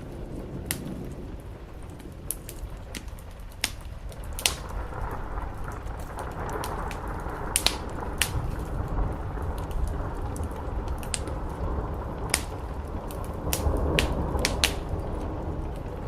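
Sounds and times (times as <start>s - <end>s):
rain on a roof: 0.0s - 16.0s
wood fire crackling: 0.0s - 16.0s.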